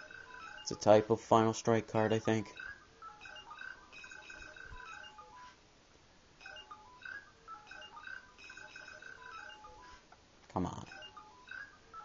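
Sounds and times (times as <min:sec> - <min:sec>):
electronic beeps and chirps: 0:00.0 - 0:00.8, 0:02.4 - 0:05.5, 0:06.4 - 0:10.0, 0:10.9 - 0:12.0.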